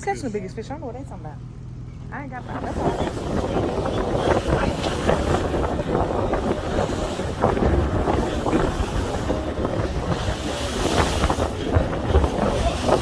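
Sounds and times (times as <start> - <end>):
boat engine noise: 0.0 - 13.0
wind buffeting microphone: 2.2 - 13.0
sea wash: 2.3 - 13.0.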